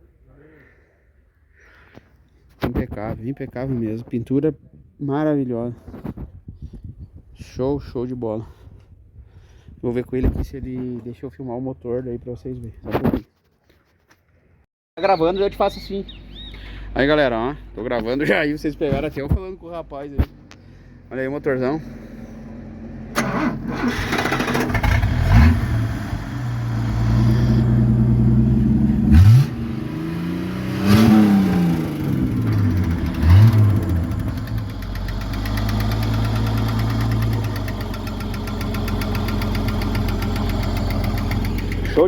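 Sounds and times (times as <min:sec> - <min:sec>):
car engine revving then idling: 0:22.4 - 0:42.0
light engine knock: 0:34.1 - 0:42.0.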